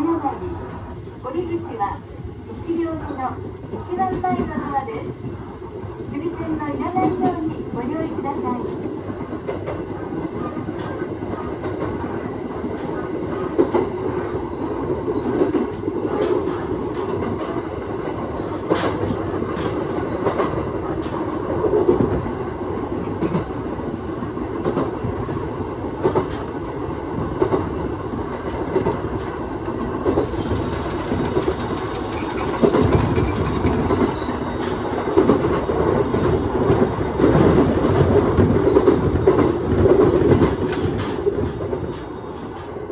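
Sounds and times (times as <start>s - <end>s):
train rumble from inside: 0.0s - 42.9s
wheels clicking over rail joints: 28.7s - 42.7s.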